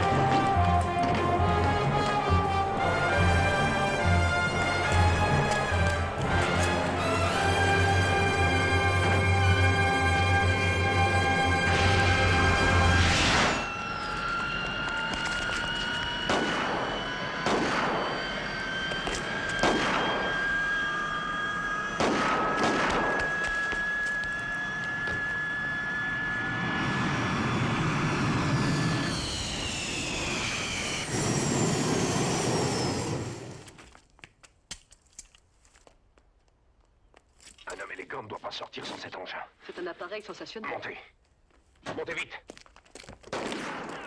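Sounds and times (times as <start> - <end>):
sharp cracks: 14.9 - 18.1, 22.0 - 24.4, 42.6 - 44.0
jetpack jet hiss and whistling: 23.1 - 33.7.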